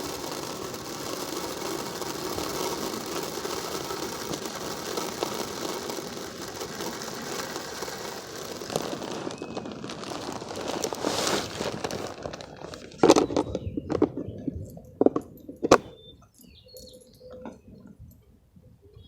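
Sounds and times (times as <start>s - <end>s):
bird seed pouring: 0.0s - 14.4s.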